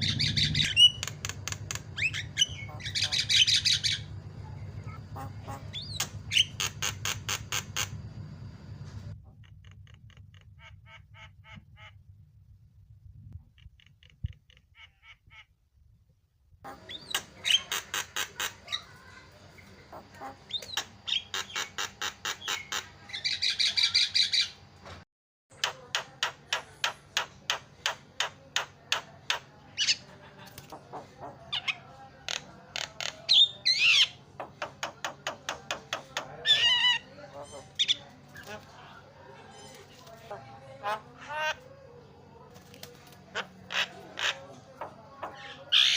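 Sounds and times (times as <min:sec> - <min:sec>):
myna bird chattering and squawking: 0:00.0 - 0:12.0, 0:13.4 - 0:15.5, 0:16.7 - 0:24.6, 0:25.5 - 0:38.7, 0:43.3 - 0:45.9
steady low hum: 0:00.0 - 0:14.4.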